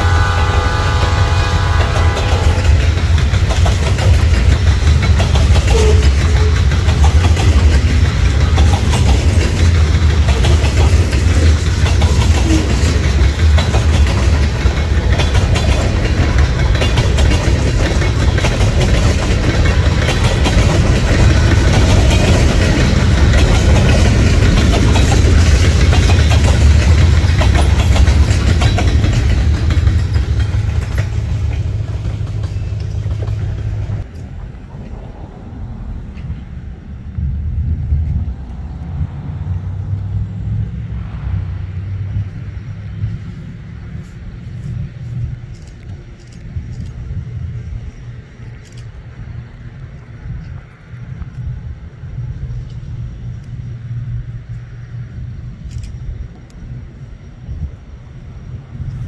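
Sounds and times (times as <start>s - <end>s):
wheels clattering over rails: 0.0s - 35.0s
diesel locomotive engines rumbling: 0.0s - 59.0s.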